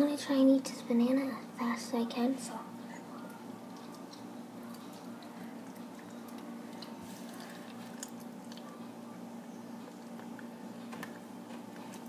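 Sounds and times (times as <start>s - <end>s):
steady low hum: 0.0s - 12.0s
person chewing: 3.7s - 8.8s.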